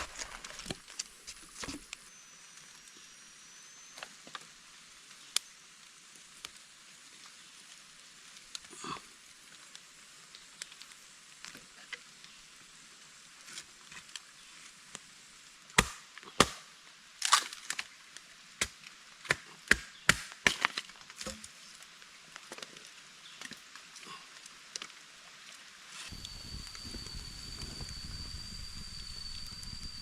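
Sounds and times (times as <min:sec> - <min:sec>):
wood being chopped: 0:15.8 - 0:17.5, 0:18.6 - 0:21.4.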